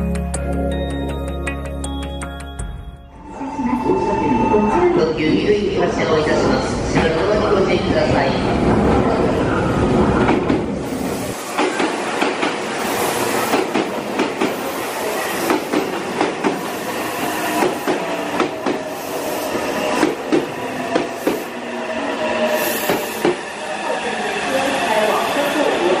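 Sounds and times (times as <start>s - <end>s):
electric train whine: 10.7s - 26.0s.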